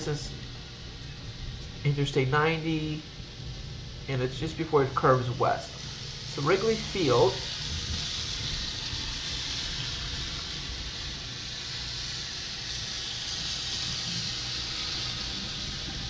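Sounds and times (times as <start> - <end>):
rain: 5.9 - 16.0
wind on microphone: 7.6 - 9.1.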